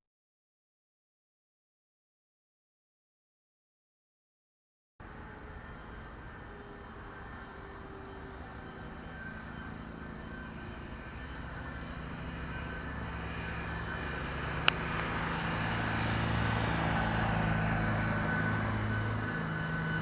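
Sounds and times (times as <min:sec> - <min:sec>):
jet engines whining: 0:05.0 - 0:20.0.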